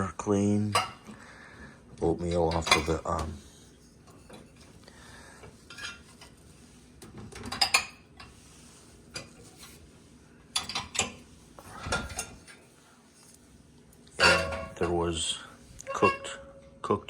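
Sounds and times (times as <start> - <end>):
dishes and cutlery clinking: 0.7 - 1.1, 2.4 - 3.4, 5.6 - 6.4, 7.3 - 8.4, 10.6 - 11.2, 11.8 - 12.6, 14.2 - 16.8.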